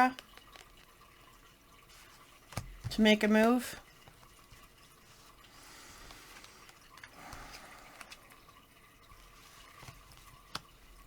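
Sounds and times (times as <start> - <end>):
cards rustling and clicking: 1.9 - 8.4, 9.1 - 11.0.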